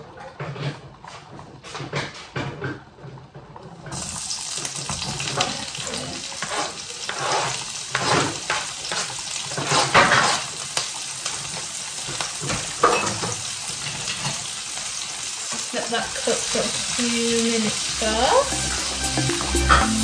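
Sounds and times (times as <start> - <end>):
vegetables sizzling in hot oil: 3.9 - 20.0
scraping in a pan: 5.0 - 11.7.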